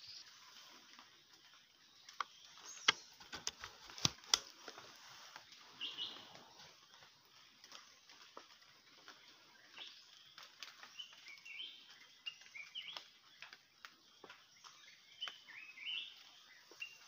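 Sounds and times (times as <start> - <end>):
high bird chirps: 5.6 - 6.7.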